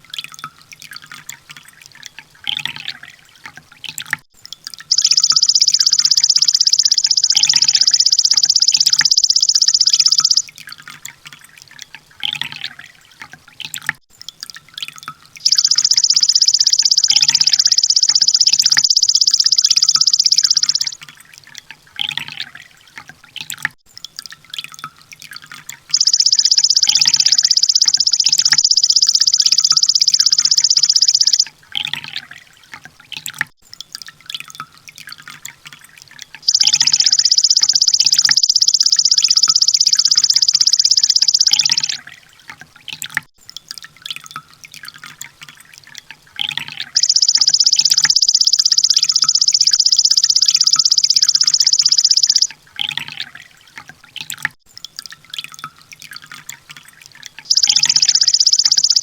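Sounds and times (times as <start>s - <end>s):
bird rapid high trills: 4.9s - 10.5s, 15.4s - 21.0s, 25.9s - 31.5s, 36.5s - 42.0s, 46.8s - 52.5s, 57.5s - 59.0s.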